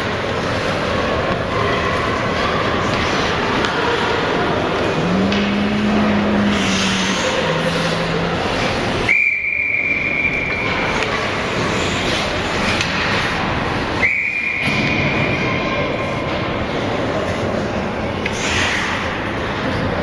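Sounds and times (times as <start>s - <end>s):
rink background noise: 0.0s - 20.0s
referee's whistle blasts: 9.1s - 10.6s.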